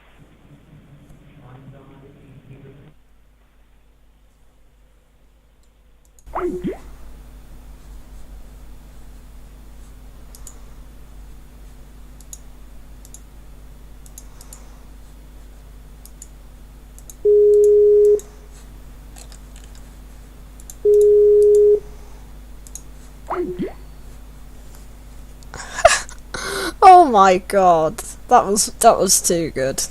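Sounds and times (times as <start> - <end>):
faint clicks: 10.3 - 10.6, 12.2 - 13.3, 14.0 - 14.6, 16.0 - 16.4, 17.0 - 18.3, 22.6 - 22.9
telephone line hum: 17.1 - 19.8, 20.7 - 22.4
telephone beeps: 17.3 - 18.3, 20.8 - 21.9.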